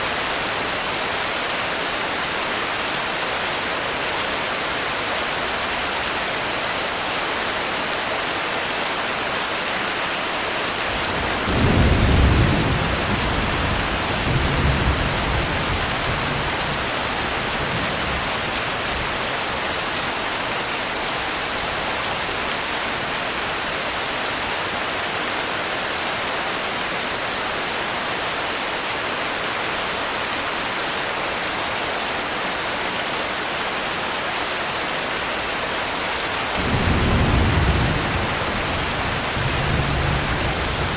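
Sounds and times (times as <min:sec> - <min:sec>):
heavy rain falling: 0:00.0 - 0:40.9
thunder rumbling: 0:10.9 - 0:18.4, 0:36.6 - 0:40.9.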